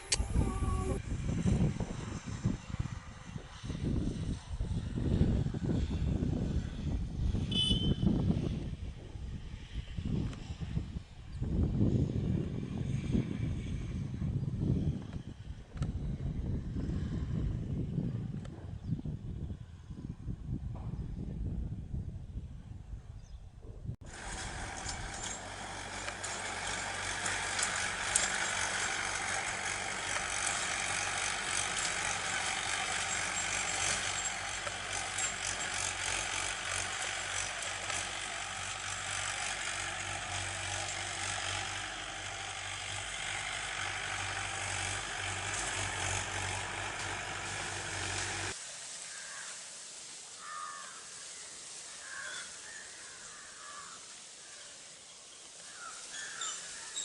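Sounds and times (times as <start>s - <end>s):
faint bird calls: 50.4s - 57.0s.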